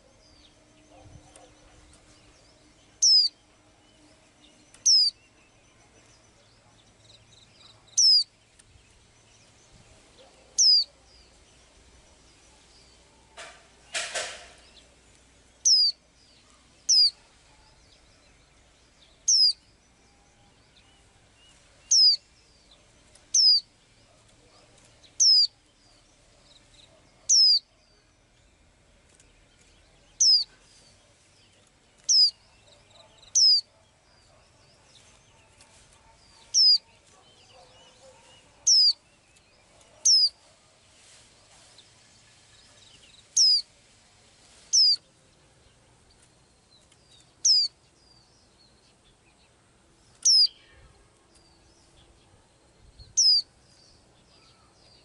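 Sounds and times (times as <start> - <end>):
small bird whistling call: 3.0 - 3.3, 4.8 - 5.2, 8.0 - 8.3, 10.6 - 10.9, 15.7 - 16.0, 16.9 - 17.2, 19.3 - 19.6, 21.9 - 22.2, 23.4 - 23.6, 25.2 - 25.5, 27.3 - 27.6, 30.2 - 30.5, 33.4 - 33.6, 36.6 - 36.8, 38.7 - 39.0, 43.4 - 43.6, 44.8 - 45.0, 47.5 - 47.7, 50.2 - 50.6, 53.2 - 53.4.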